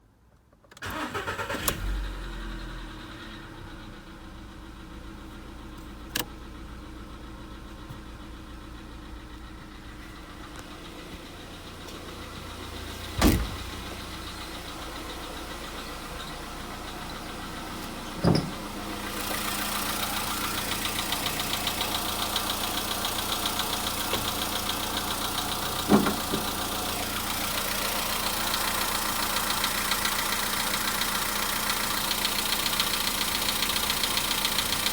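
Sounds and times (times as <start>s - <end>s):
car engine starting and idling: 0.6s - 34.9s
loud thumps: 13.1s - 13.8s
fast engine knocking: 19.3s - 34.9s.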